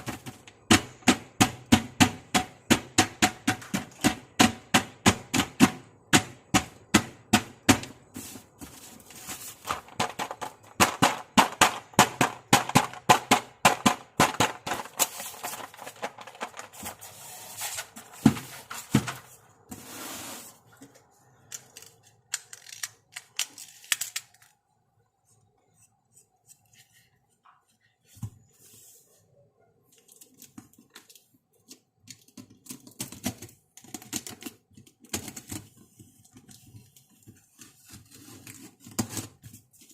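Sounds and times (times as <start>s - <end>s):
packaging rustling: 8.0s - 11.7s, 14.2s - 19.5s.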